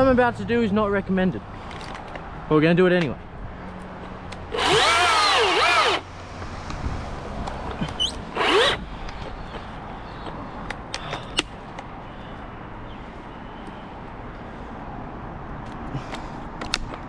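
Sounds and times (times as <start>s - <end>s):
chainsaw motor revving: 4.5s - 6.1s, 8.0s - 8.8s.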